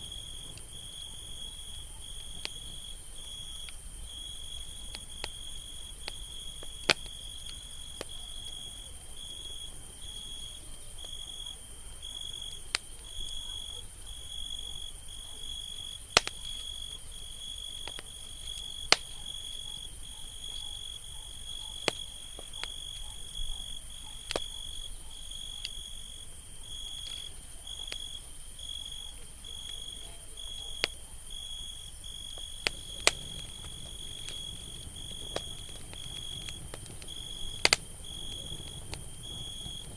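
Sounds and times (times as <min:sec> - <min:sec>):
campfire crackling and popping: 0:00.0 - 0:13.4, 0:15.4 - 0:39.9
constant high hiss: 0:00.0 - 0:39.9
insect chirping: 0:00.0 - 0:39.9.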